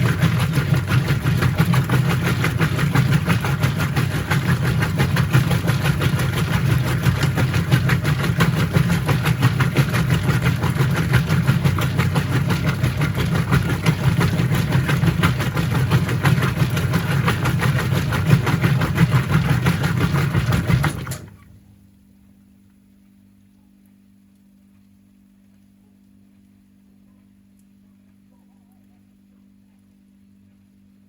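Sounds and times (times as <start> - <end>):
washing machine running: 0.0 - 21.9
faint low hum: 21.3 - 31.0.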